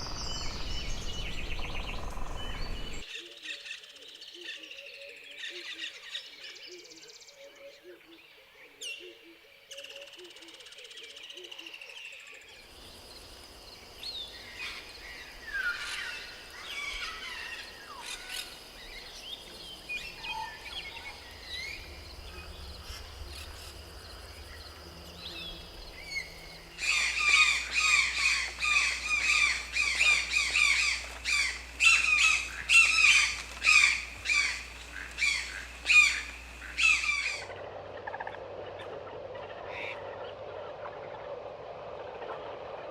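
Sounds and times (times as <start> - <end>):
bird calls: 0.0 - 3.1, 12.6 - 40.4
rainforest ambience: 0.0 - 42.9
loud repeated bird calls: 25.5 - 37.5.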